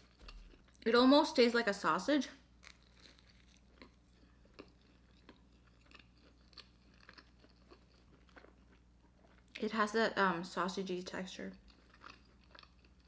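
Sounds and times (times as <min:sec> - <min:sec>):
faint wet chewing: 0:00.0 - 0:00.9, 0:02.6 - 0:09.6, 0:11.6 - 0:13.0.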